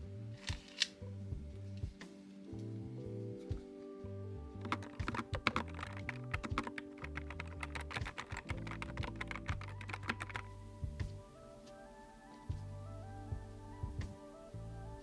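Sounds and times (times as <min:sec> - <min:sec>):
background music: 0:00.0 - 0:15.0
fast keyboard typing clicks: 0:04.6 - 0:10.5.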